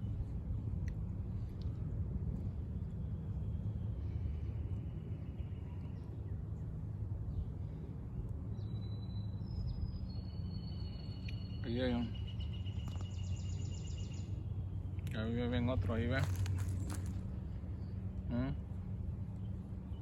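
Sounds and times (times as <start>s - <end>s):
steady low rumble: 0.0s - 20.0s
faint high-pitched whistles: 8.6s - 14.3s.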